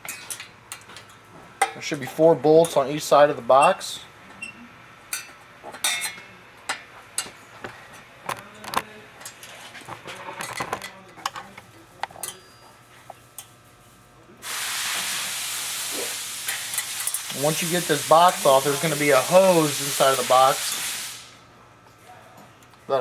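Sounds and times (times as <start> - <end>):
steady loud hiss: 14.4 - 21.5.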